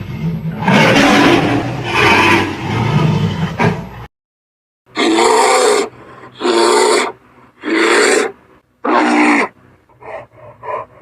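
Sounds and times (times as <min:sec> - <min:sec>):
animal rasping calls: 0:05.0 - 0:11.0.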